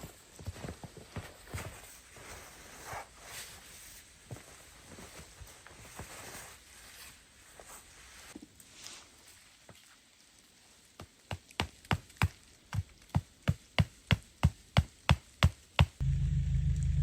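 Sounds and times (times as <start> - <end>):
loud low rumble: 16.0 - 17.0.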